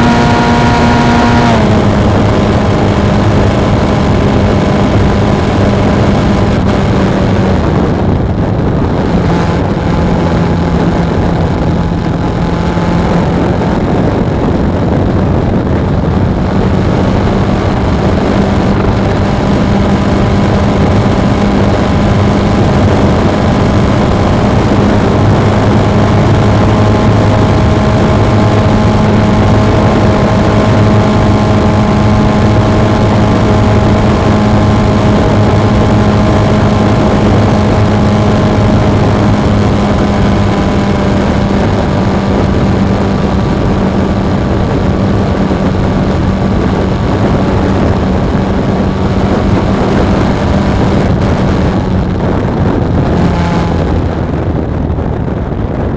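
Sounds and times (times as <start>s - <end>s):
motorcycle engine running: 0.0s - 55.9s
wind and road noise: 0.0s - 55.9s.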